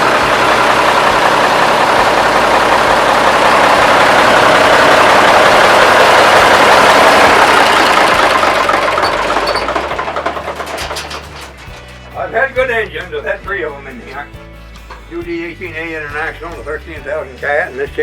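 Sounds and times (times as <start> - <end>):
power unit engine running: 0.0 - 14.3.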